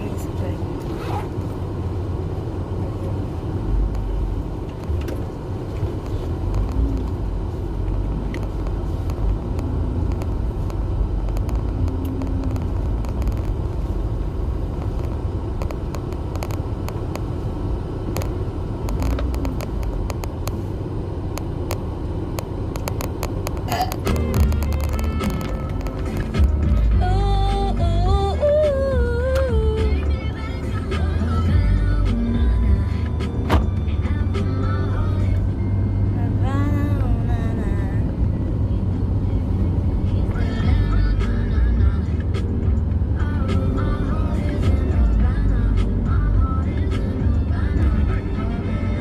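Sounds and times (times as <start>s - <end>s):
car cabin rumble: 0.0s - 49.0s.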